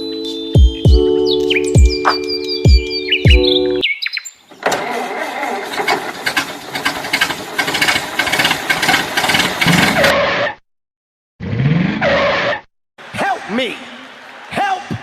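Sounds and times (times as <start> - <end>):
engine running with rattling clatter: 4.6 - 10.1.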